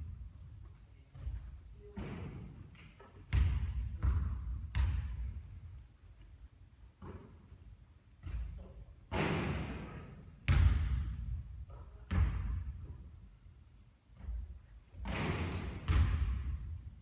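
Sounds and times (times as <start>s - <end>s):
basketball bouncing on court: 1.1s - 5.6s, 8.2s - 13.0s, 14.2s - 16.9s
basketball hitting the hoop: 3.3s - 5.2s, 9.1s - 9.8s, 15.0s - 16.6s.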